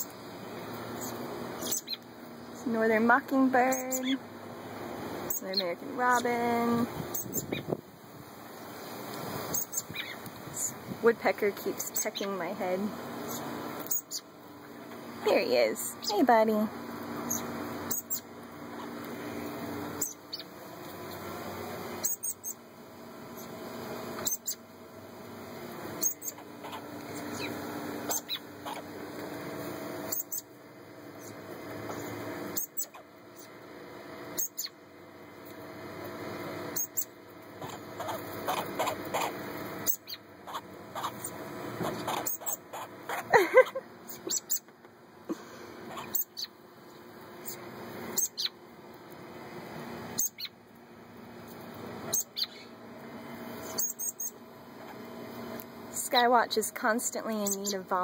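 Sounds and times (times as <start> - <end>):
steady low hum: 0.0 - 58.0
falling bird chirps: 1.0 - 2.0, 53.6 - 54.4
young birds squeaky calls: 1.0 - 2.1, 7.1 - 7.7, 9.5 - 10.2, 13.2 - 14.3, 17.2 - 19.0, 20.0 - 20.5, 22.0 - 22.6, 26.0 - 28.8, 30.1 - 30.5, 36.8 - 43.3, 44.1 - 44.7, 45.9 - 46.6, 48.2 - 48.6, 50.2 - 50.6, 52.1 - 52.7, 53.6 - 55.0.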